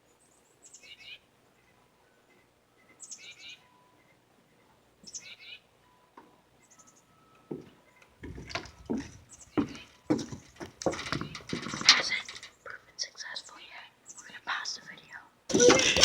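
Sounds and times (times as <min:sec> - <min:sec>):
small bird calling: 0:03.0 - 0:03.7, 0:05.0 - 0:05.7.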